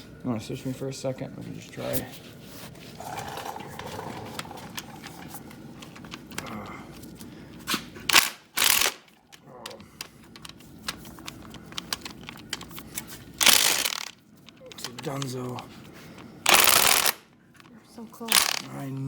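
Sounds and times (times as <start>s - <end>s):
impact gun bursts: 8.1s - 9.1s, 13.4s - 14.1s, 16.5s - 17.2s, 18.3s - 18.7s
tool clicks and knocks: 8.1s - 15.6s, 16.5s - 17.2s, 18.3s - 19.0s.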